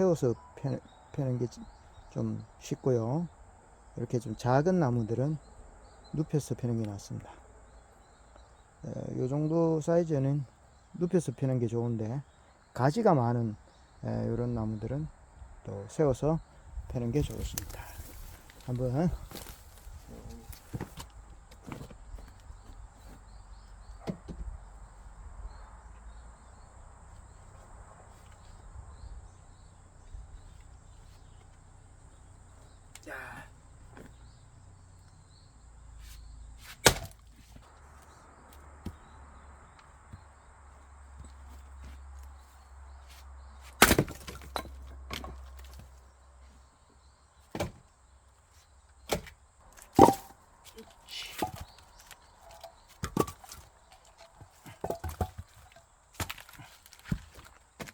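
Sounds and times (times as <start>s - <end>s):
wood cracking as it splits: 17.2s - 21.8s, 36.7s - 37.3s, 43.7s - 45.8s, 49.0s - 57.9s
wood pieces knocking: 17.2s - 22.4s, 43.7s - 45.9s, 47.5s - 47.8s, 49.1s - 57.9s
axe striking a log: 19.3s - 19.6s, 36.6s - 37.3s, 43.7s - 45.8s, 47.5s - 47.8s, 49.1s - 50.4s, 51.3s - 53.6s, 54.6s - 57.9s.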